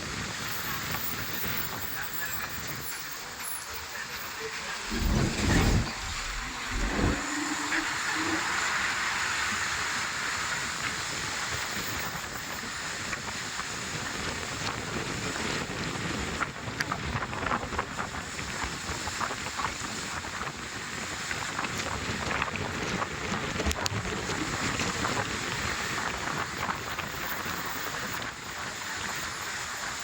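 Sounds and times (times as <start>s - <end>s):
wind buffeting microphone: 4.8s - 8.7s.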